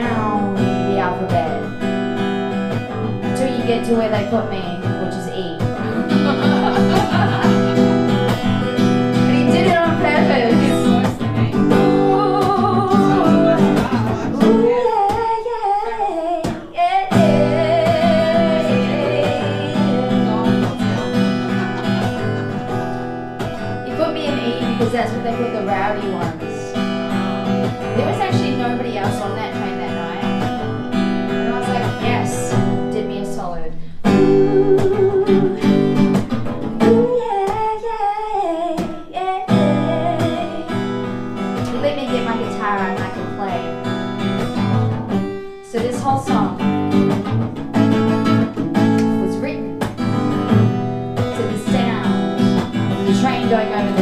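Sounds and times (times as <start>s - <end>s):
acoustic guitar: 0.0s - 54.0s
person singing: 3.0s - 22.6s, 34.1s - 36.2s, 36.8s - 41.0s
wordless singing voice: 9.2s - 21.8s.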